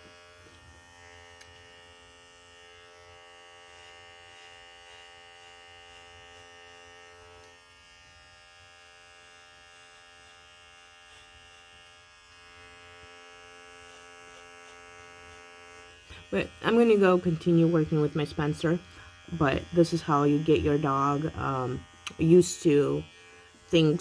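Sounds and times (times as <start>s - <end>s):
electric hair trimmer buzzing: 0.0s - 24.0s.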